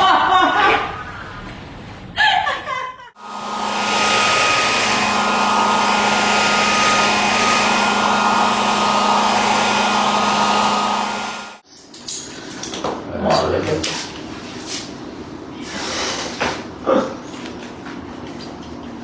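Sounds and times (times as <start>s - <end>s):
blow dryer rushing air: 3.2s - 11.6s.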